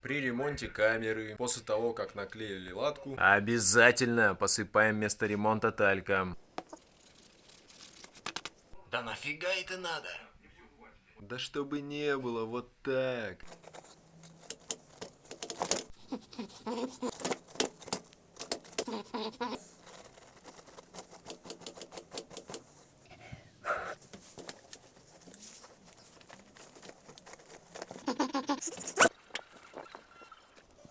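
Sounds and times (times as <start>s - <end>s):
rubber squeaks: 13.4s - 22.9s, 24.0s - 30.9s
rubber tube peeling crackle: 24.0s - 30.0s.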